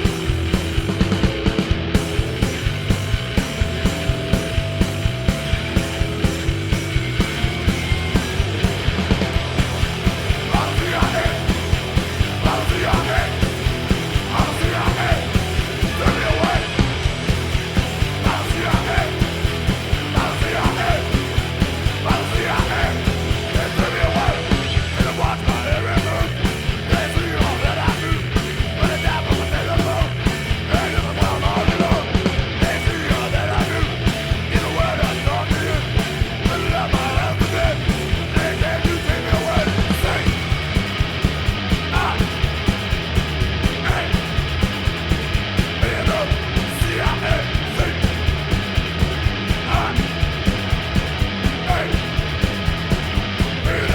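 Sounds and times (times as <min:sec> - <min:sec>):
punk rock song: 0:00.0 - 0:53.9
shouted vocals: 0:10.3 - 0:16.9, 0:17.9 - 0:40.6, 0:41.8 - 0:42.4, 0:43.7 - 0:44.3, 0:45.7 - 0:48.2, 0:49.4 - 0:50.1, 0:51.5 - 0:52.1, 0:53.5 - 0:53.9.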